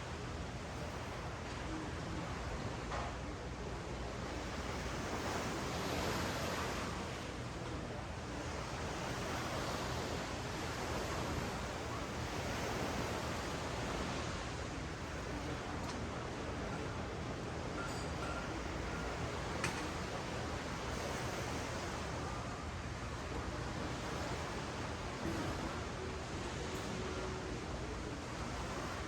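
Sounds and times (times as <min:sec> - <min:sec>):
ocean surf on sandy beach: 0:00.0 - 0:02.9, 0:03.7 - 0:29.0.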